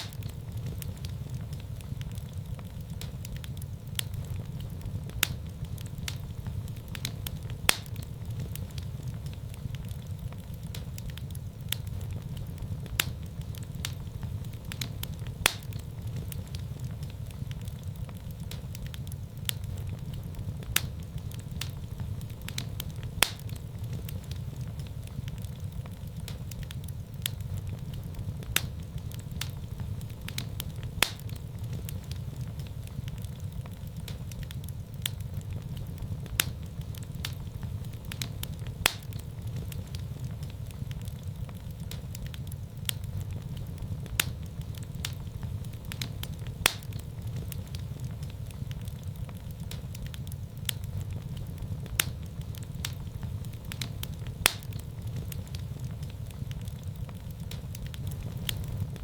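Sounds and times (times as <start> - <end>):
fire crackles and pops: 0.0 - 59.0
fire flames rumbling: 0.0 - 59.0.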